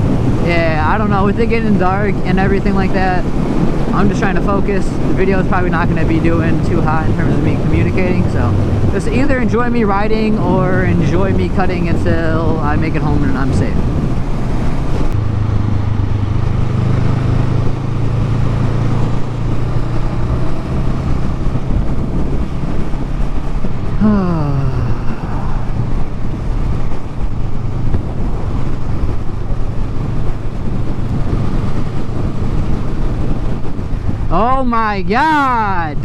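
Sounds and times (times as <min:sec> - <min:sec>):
wind rush: 0:00.0 - 0:36.0
motorcycle engine running: 0:13.6 - 0:34.7.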